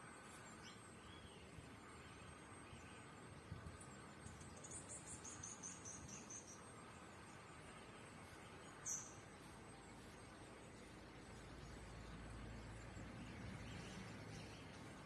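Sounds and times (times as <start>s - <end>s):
small bird chirping: 3.8s - 7.5s, 8.2s - 15.0s.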